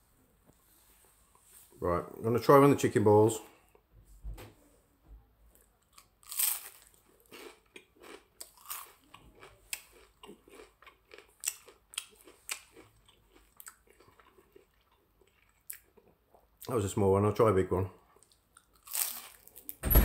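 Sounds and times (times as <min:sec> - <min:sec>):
person chewing crunchy food: 0:05.6 - 0:16.6, 0:18.0 - 0:19.8.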